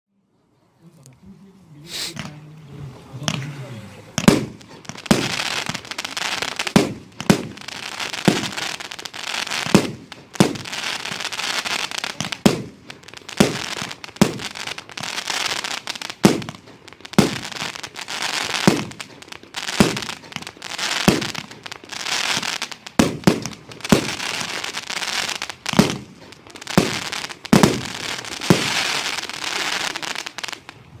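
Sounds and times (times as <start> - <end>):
hiss: 1.8 - 2.2
fireworks battery firing shots: 4.2 - 30.6.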